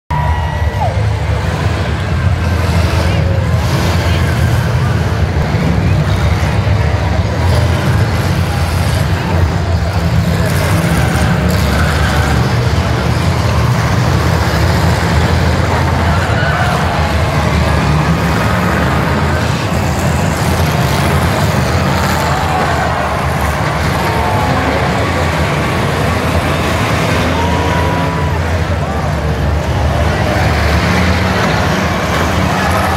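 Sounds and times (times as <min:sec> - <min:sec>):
many car engines rumbling: 0:00.0 - 0:32.9.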